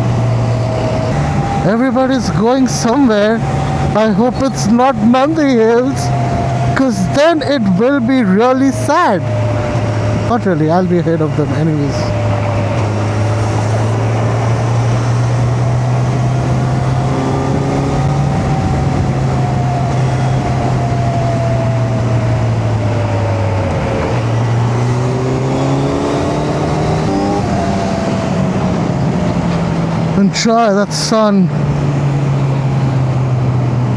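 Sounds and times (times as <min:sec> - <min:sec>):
wind rushing: 0:00.0 - 0:30.2
motorcycle engine cruising: 0:00.0 - 0:33.9.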